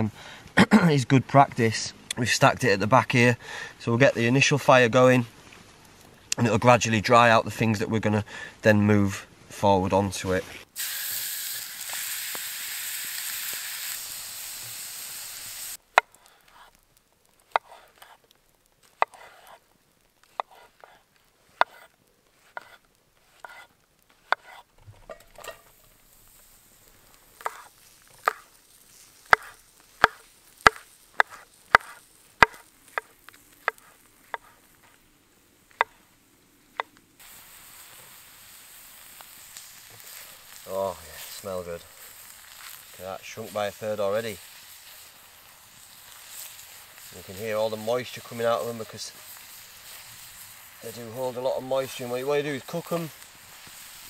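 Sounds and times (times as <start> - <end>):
steak sizzling in skillet: 10.7 - 54.0
knife chopping on wooden board: 19.0 - 19.5, 20.4 - 20.7, 21.6 - 21.9, 22.5 - 22.8, 23.4 - 24.6, 27.4 - 28.4, 29.3 - 34.6.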